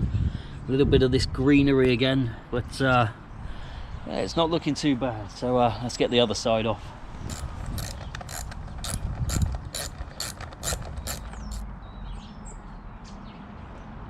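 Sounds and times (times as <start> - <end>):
hand ratchet clicking: 7.3 - 11.6.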